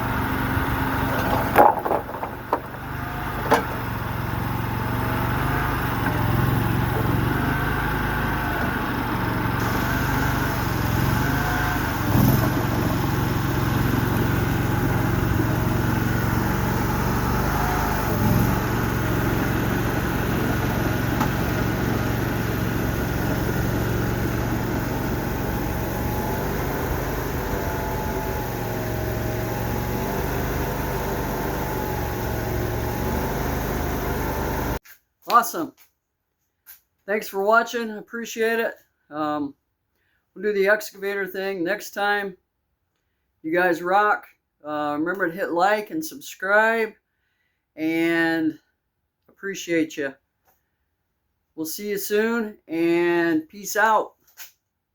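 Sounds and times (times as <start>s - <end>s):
small engine running: 0.0s - 34.8s
clunks: 0.5s - 7.5s, 16.4s - 24.8s.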